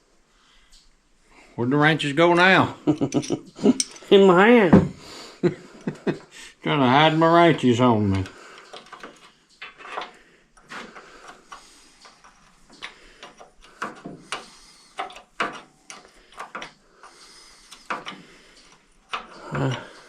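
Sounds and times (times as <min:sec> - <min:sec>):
wrenches clicking on bolt: 0:03.1 - 0:04.1, 0:07.6 - 0:20.0.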